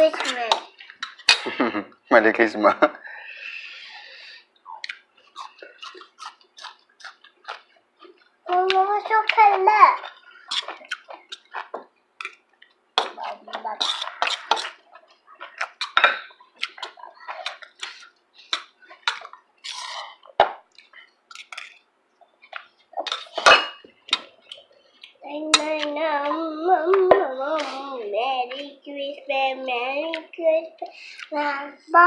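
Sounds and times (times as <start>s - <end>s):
people talking: 8.5s - 10.0s, 13.2s - 14.1s
cutlery clinking against dishes: 23.0s - 24.3s
person singing: 25.2s - 28.8s.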